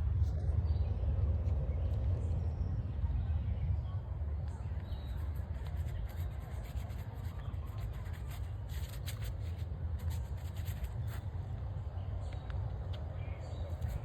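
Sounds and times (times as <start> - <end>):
scratchy rubbing strokes: 5.1 - 11.2.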